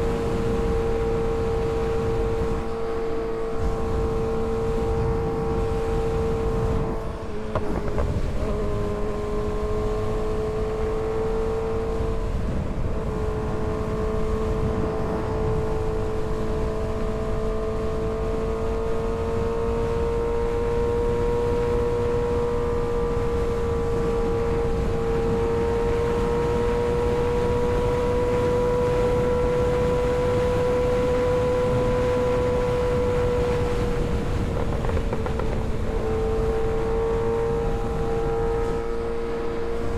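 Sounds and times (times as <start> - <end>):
motorcycle engine running high: 0.0 - 39.9.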